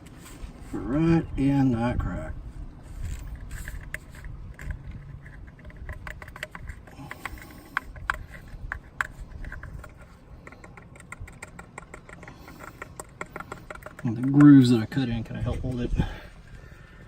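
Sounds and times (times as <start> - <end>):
small tool clicking and scraping: 2.9 - 15.0.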